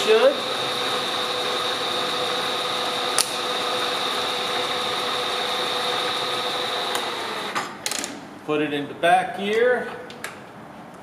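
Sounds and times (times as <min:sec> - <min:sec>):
milling machine spindle whine: 0:00.0 - 0:07.6.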